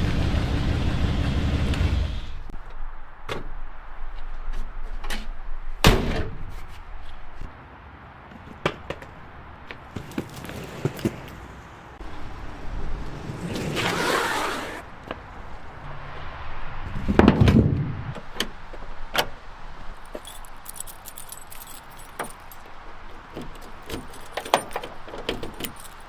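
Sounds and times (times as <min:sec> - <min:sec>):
car engine stopping: 0:00.0 - 0:02.5.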